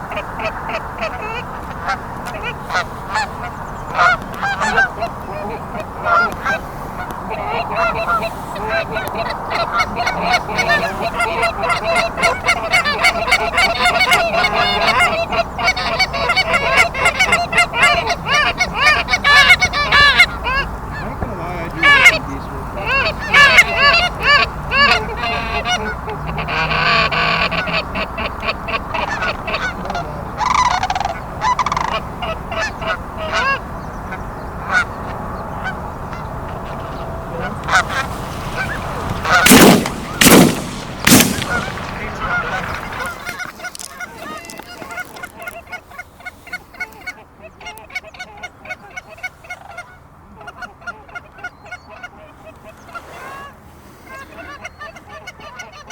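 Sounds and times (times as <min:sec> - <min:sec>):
geese honking: 0:00.0 - 0:55.9
shotgun shots: 0:39.0 - 0:43.2.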